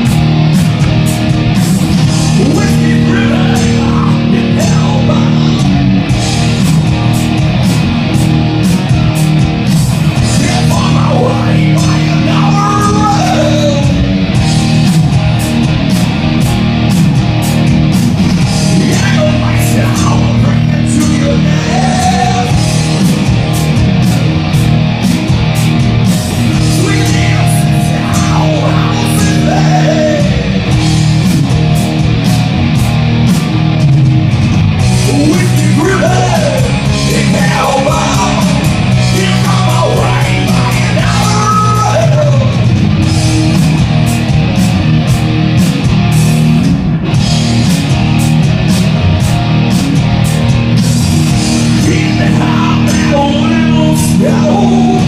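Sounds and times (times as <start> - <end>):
bass guitar: 0.0 - 55.0
distorted electric guitar: 0.0 - 55.0
drums and cymbals: 0.0 - 55.0
person singing: 2.3 - 5.8, 10.2 - 14.0, 18.7 - 22.6, 26.5 - 30.7, 35.0 - 42.7, 51.6 - 55.0.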